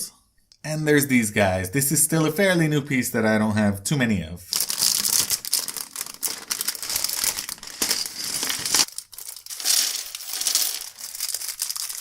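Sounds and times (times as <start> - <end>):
plastic bag crinkling: 4.5 - 12.0.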